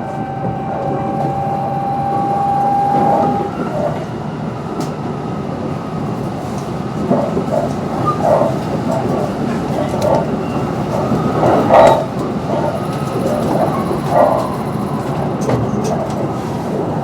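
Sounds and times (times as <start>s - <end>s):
thin steady whine: 0.0s - 3.6s
train rail and running noise: 0.0s - 17.0s.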